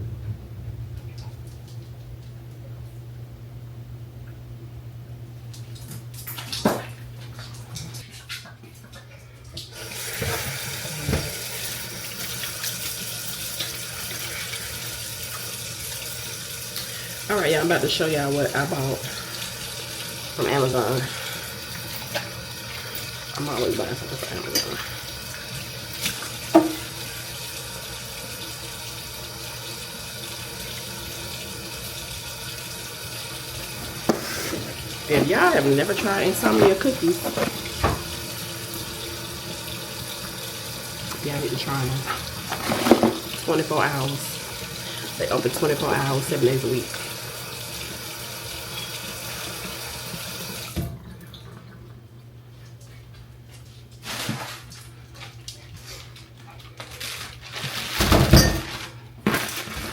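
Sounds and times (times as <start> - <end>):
tap water running into sink: 5.8 - 51.9.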